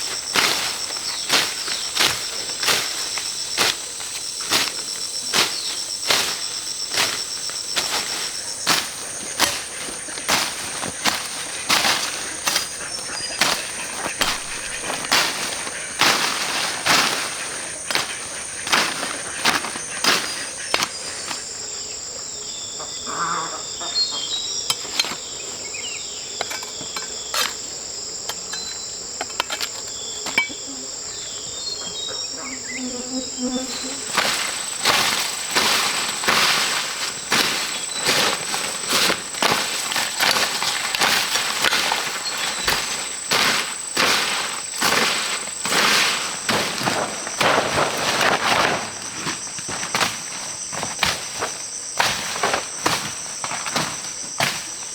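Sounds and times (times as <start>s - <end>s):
scuffing and knocking strokes: 0.0s - 21.4s, 33.6s - 54.9s
insects droning: 0.0s - 54.9s
knocks and scrapes of work: 4.4s - 21.4s, 24.7s - 25.4s, 26.4s - 27.7s, 28.3s - 30.6s, 33.6s - 54.9s.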